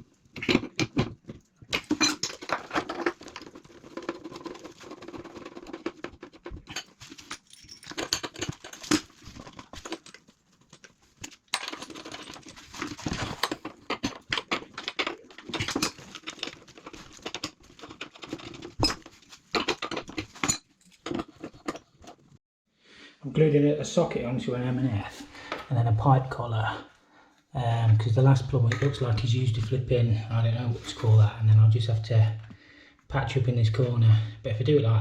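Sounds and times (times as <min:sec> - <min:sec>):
plastic pipe scraping: 0:00.0 - 0:07.3, 0:11.8 - 0:20.4.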